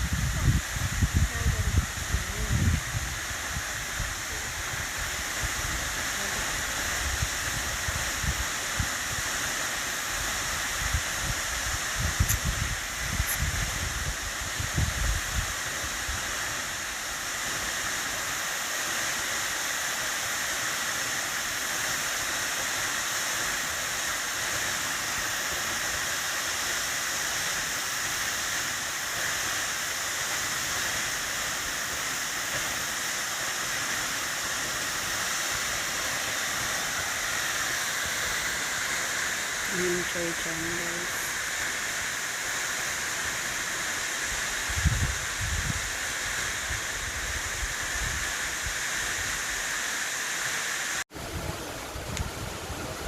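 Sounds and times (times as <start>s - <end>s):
rushing falling water: 0.0s - 53.0s
wind thumps on microphone: 11.2s - 15.5s, 44.7s - 45.9s.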